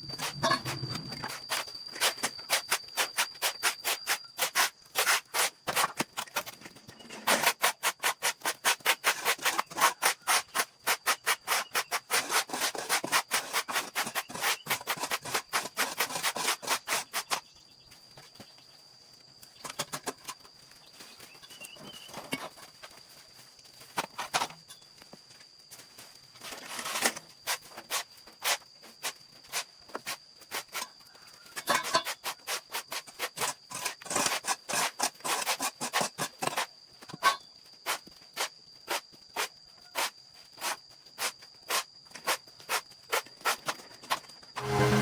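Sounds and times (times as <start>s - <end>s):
faint steady high tone: 0.0s - 4.4s, 44.5s - 45.0s.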